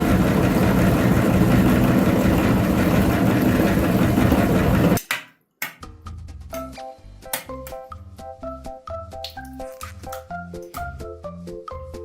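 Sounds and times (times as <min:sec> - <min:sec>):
engine running: 0:00.0 - 0:05.0.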